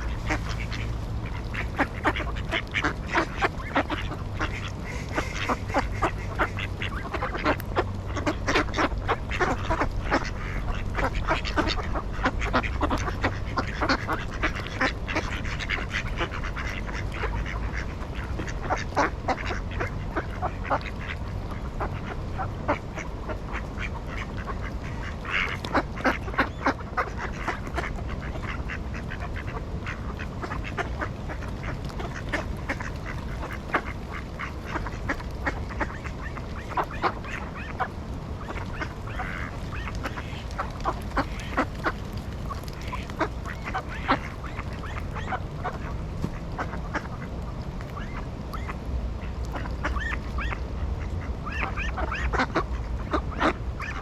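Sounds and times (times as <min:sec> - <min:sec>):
ducks quacking: 0:00.0 - 0:54.0
low background rumble: 0:00.0 - 0:54.0.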